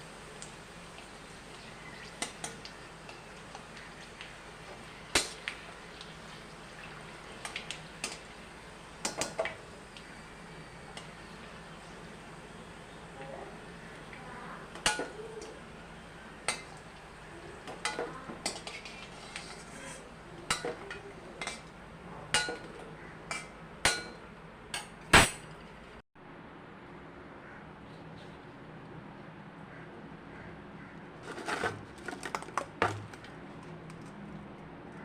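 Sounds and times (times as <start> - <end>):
dishes and utensils clinking: 17.7 - 21.7, 22.3 - 24.2.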